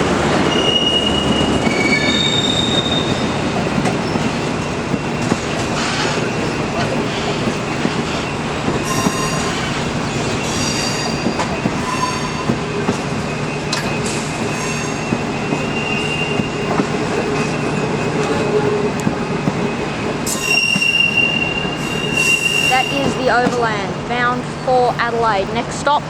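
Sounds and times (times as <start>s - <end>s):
train wheels clattering on rails: 0.0s - 26.0s
high-pitched wheel squeals: 0.4s - 3.4s, 8.8s - 12.5s, 14.0s - 16.6s, 20.2s - 23.3s.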